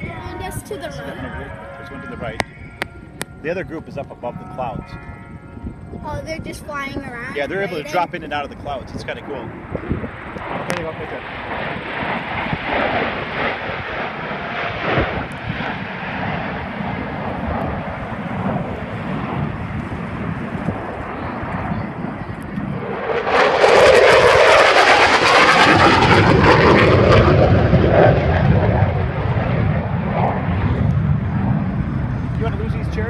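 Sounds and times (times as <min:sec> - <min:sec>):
airplane engines droning: 0:00.0 - 0:33.0
low pass airplane roar: 0:00.0 - 0:33.0.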